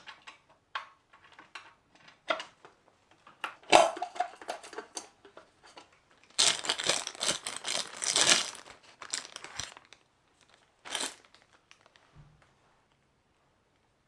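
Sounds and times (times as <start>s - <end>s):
crinkling and rustling: 4.0s - 12.5s.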